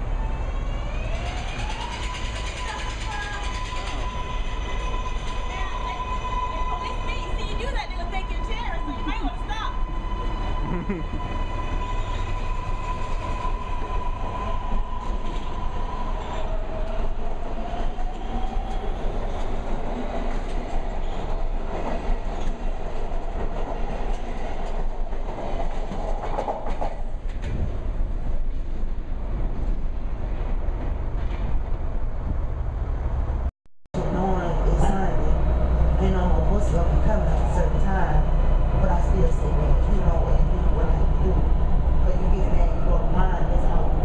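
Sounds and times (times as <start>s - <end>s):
train rumbling: 0.0s - 44.0s
wheels clacking over rail joints: 1.4s - 4.4s.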